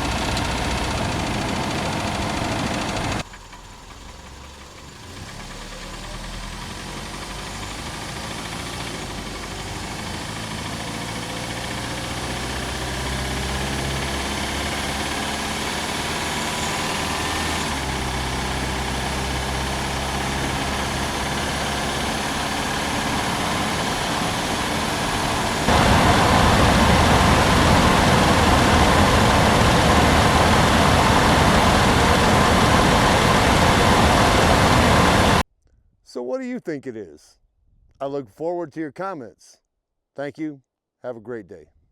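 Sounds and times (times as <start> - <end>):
car engine running: 0.0 - 3.2, 6.8 - 35.4.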